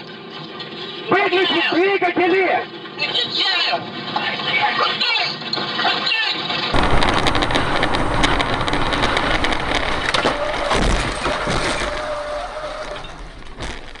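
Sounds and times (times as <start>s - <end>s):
aircraft crash rumble and cracks: 6.6s - 14.0s.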